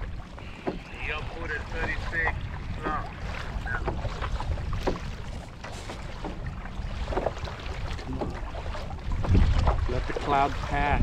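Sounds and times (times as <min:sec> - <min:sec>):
sea water washing around kayak: 0:00.0 - 0:11.0
wind buffeting microphone: 0:00.0 - 0:11.0.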